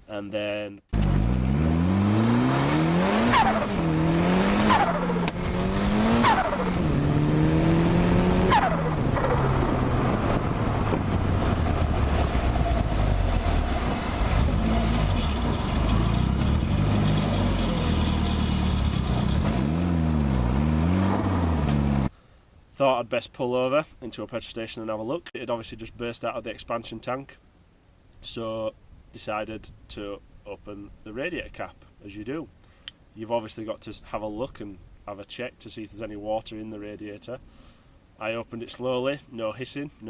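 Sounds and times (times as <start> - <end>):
car engine accelerating hard: 1.0 - 22.1.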